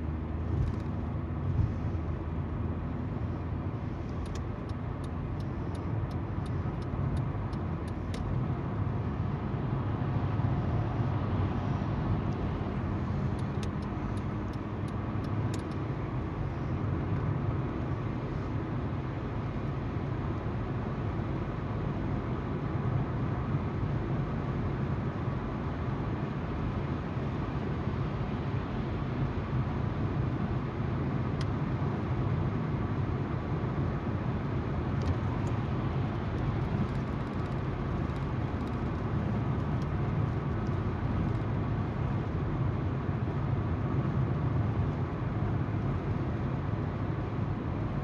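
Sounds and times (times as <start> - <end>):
car engine hum: 0.0 - 48.0
tyre noise on road: 33.5 - 47.9.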